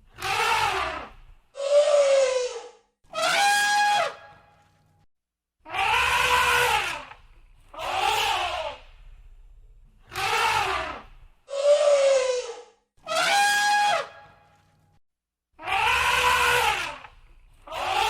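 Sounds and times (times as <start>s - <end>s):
elephants trumpeting: 7.7s - 8.9s, 10.1s - 14.1s, 15.7s - 17.1s.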